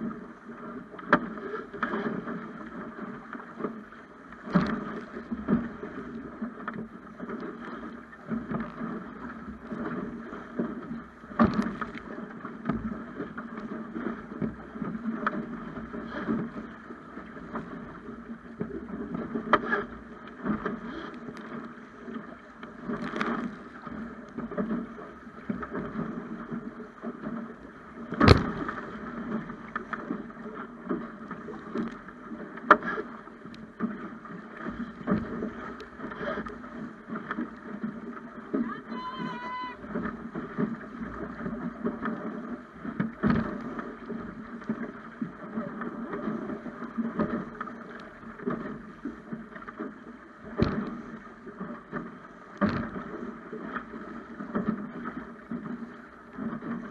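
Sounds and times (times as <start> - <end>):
water rushing against hull: 0.0 - 56.9
sharp water slaps: 28.2 - 28.8.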